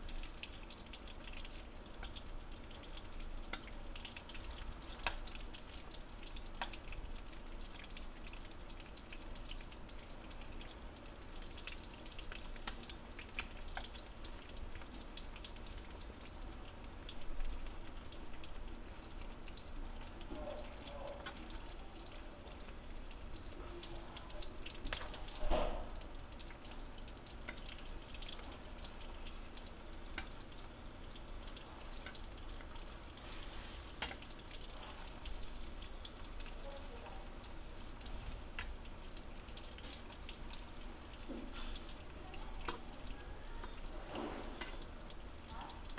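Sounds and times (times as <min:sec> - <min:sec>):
oil sizzling in frying pan: 0:00.0 - 0:45.9.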